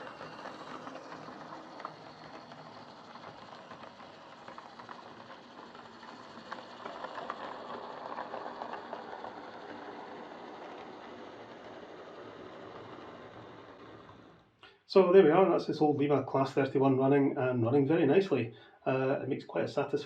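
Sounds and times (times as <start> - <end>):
model train motor whirring: 0.0 - 14.5
wheels clicking on rails: 0.0 - 14.8.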